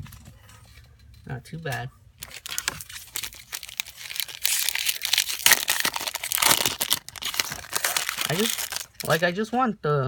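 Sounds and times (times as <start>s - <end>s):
foil wrapper crinkling and tearing: 2.2s - 9.4s.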